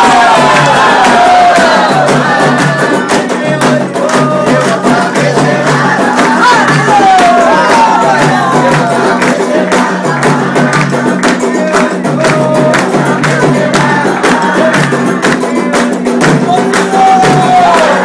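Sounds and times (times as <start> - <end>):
hand percussion beat: 0.0 - 18.0
voices singing a chant: 0.0 - 18.0.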